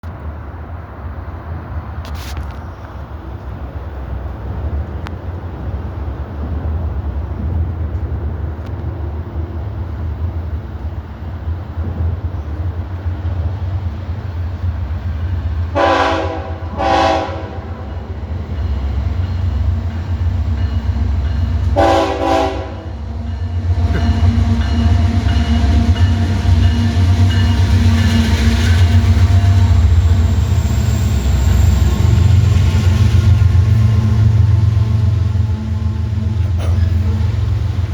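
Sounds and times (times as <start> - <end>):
train rumbling: 0.0 - 37.9
locomotive air horn blasts: 15.7 - 18.0, 21.7 - 23.0.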